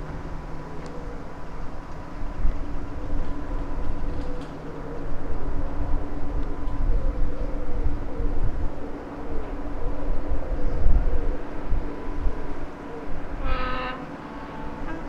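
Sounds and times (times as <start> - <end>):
diesel engines droning: 11.2 - 15.0.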